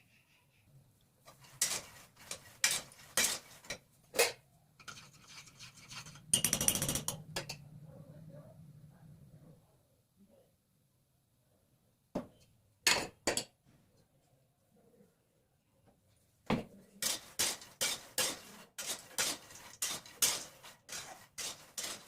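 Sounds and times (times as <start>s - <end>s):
metal spatula scraping a pan: 1.2s - 7.5s, 17.0s - 22.0s.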